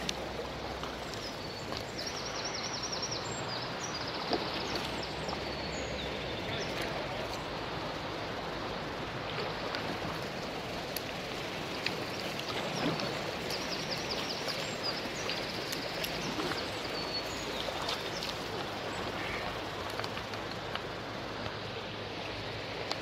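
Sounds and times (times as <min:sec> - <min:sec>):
river water rushing: 0:00.0 - 0:23.0
small ticks: 0:09.7 - 0:16.4.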